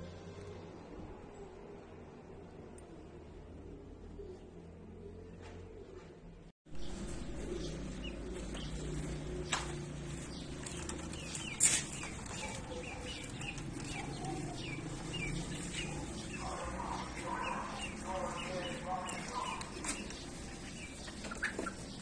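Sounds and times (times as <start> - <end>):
birds chirping: 6.7 - 22.0.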